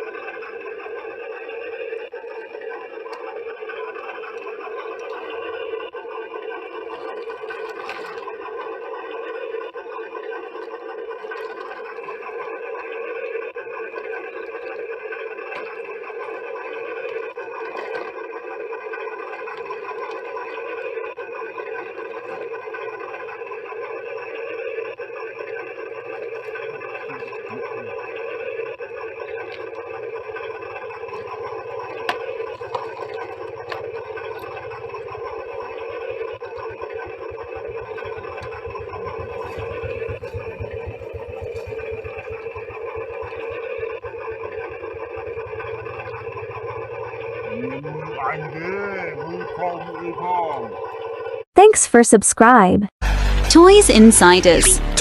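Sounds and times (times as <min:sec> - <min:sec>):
small electric motor buzzing: 0:14.0 - 0:48.3.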